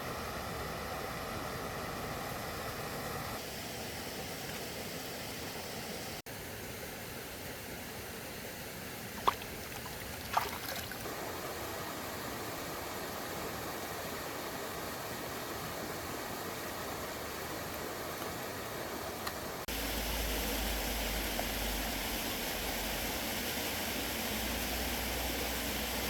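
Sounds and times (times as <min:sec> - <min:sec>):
trickling water: 0:09.0 - 0:11.3, 0:19.6 - 0:26.0.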